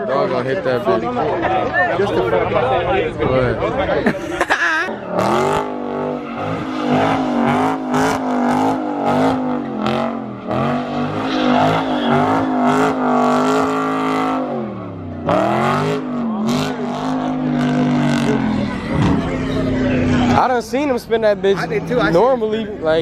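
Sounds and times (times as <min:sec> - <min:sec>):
car engine revving hard: 0:05.0 - 0:20.6.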